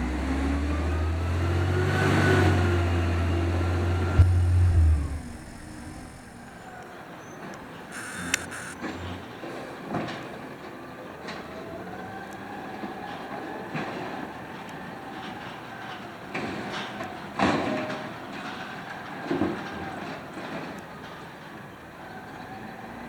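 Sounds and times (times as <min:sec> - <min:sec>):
hydraulic whine: 0:00.0 - 0:06.8, 0:07.7 - 0:09.3.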